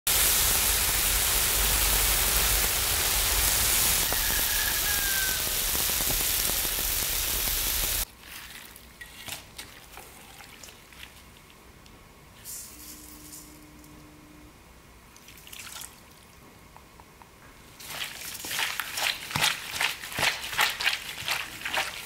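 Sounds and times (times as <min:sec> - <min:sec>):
meat and vegetables sizzling: 0:00.1 - 0:08.1.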